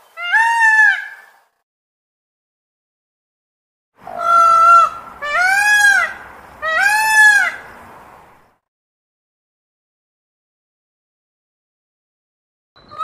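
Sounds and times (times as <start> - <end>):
peacock calling: 0.0 - 1.4, 4.0 - 8.4, 12.8 - 13.0.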